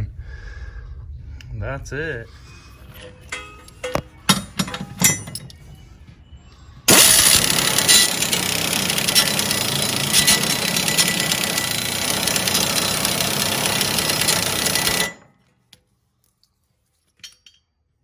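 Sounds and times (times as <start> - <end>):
pneumatic air ratchet running: 3.0 - 5.6, 6.9 - 15.3.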